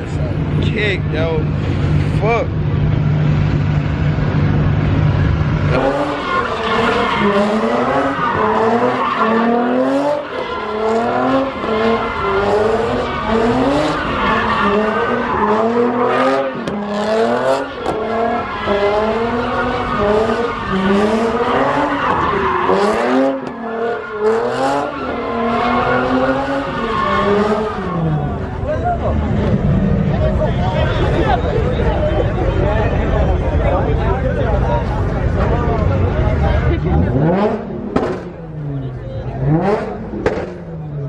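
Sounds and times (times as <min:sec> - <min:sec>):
car engine revving hard: 0:03.4 - 0:30.3, 0:36.7 - 0:40.6
tire squeal: 0:05.0 - 0:33.4.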